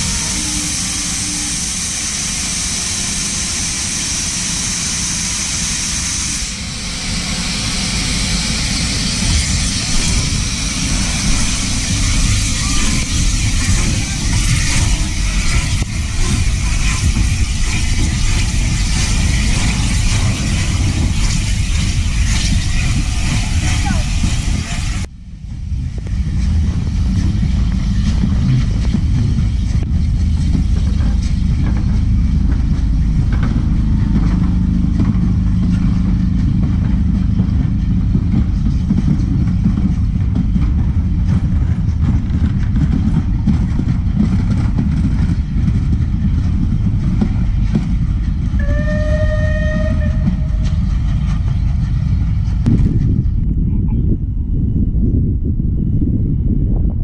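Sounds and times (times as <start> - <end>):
train horn: 0.0 - 1.7, 48.6 - 50.7
train rumbling past: 0.0 - 57.0.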